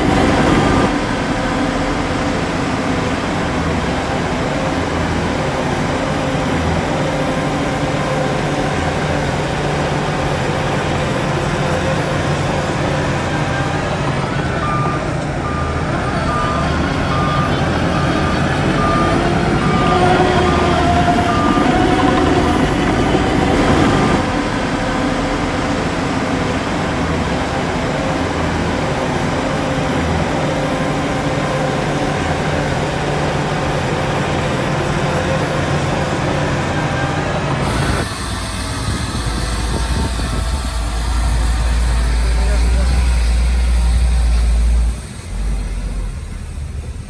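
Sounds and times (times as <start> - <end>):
heavy diesel machinery running: 0.0 - 47.0
reversing alarm beeping: 0.0 - 47.0.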